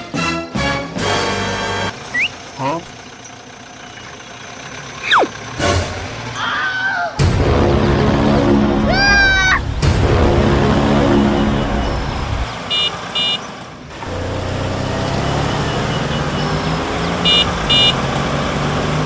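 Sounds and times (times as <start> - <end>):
vehicle engine running: 1.2 - 6.5, 7.2 - 19.0
horn double beeps: 2.1 - 2.8, 8.3 - 13.4, 15.6 - 18.0.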